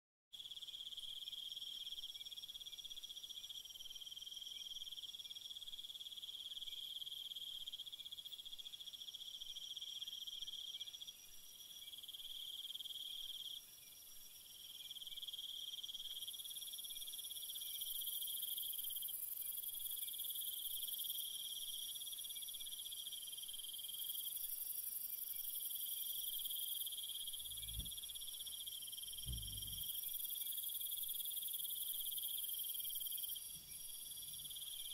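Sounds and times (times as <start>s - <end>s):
insect chorus trilling: 14.7s - 34.9s
low thumps: 27.5s - 28.0s, 29.3s - 29.9s.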